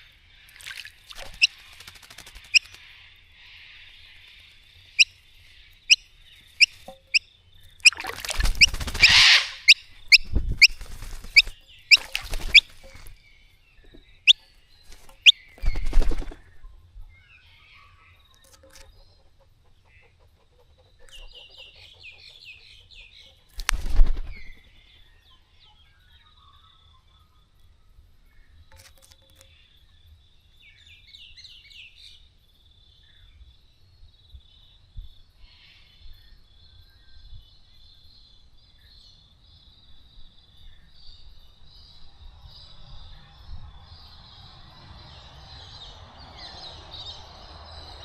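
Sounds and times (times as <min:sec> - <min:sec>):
birds splashing and fluttering: 0:00.5 - 0:03.0, 0:07.8 - 0:13.2, 0:14.9 - 0:16.6
bird twittering call: 0:00.5 - 0:13.2
sharp bird chirps: 0:01.1 - 0:02.9, 0:03.5 - 0:13.2.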